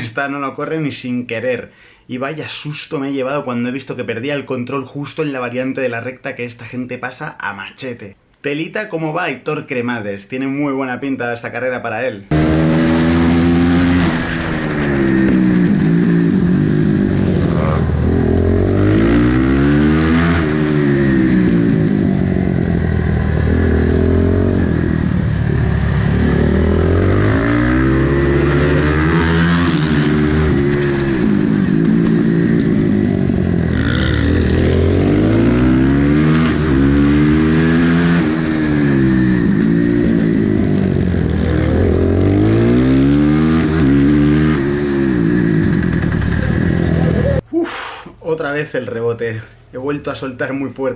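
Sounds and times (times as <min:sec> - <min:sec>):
racing motorcycle engine accelerating: 0:12.3 - 0:47.4.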